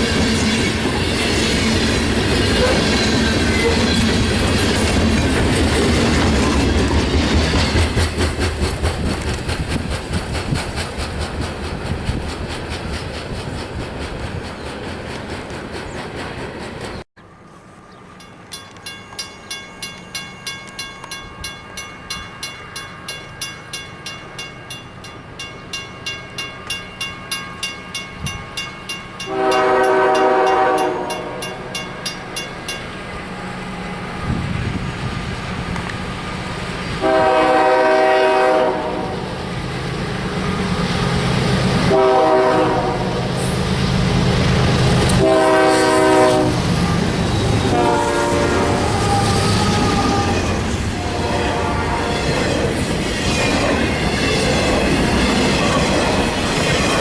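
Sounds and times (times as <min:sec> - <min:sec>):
train rumble: 0:00.0 - 0:57.0
railroad crossing bell ringing: 0:17.3 - 0:34.3
locomotive air horn blowing: 0:29.3 - 0:31.5, 0:37.0 - 0:39.3, 0:41.9 - 0:43.6, 0:45.1 - 0:52.3.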